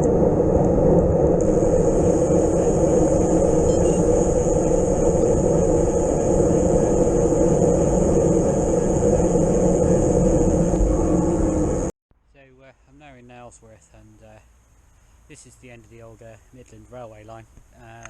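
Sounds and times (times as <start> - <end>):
wind on microphone: 0.0 - 11.9
road rumble: 0.0 - 18.0.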